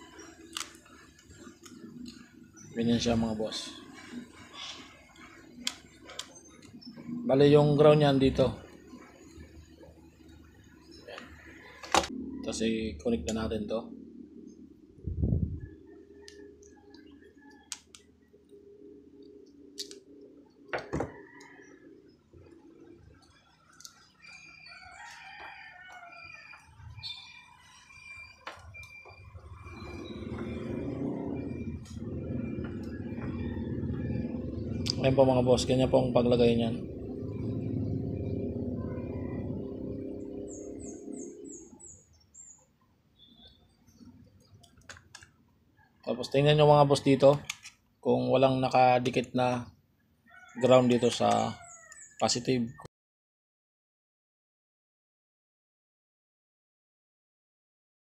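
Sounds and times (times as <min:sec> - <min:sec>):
bird chirping: 0:00.0 - 0:52.9
rooster crowing: 0:20.8 - 0:22.1, 0:24.2 - 0:29.1, 0:29.7 - 0:41.9, 0:45.8 - 0:47.6, 0:50.2 - 0:52.2
low rumble: 0:29.4 - 0:41.2.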